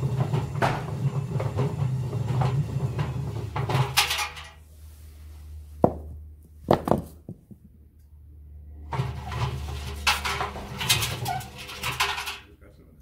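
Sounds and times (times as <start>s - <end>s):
washing machine humming: 0.0s - 4.0s
rumbling and banging: 0.0s - 4.6s, 5.8s - 7.7s, 8.8s - 12.4s
bricks knocking in drum: 5.8s - 7.6s.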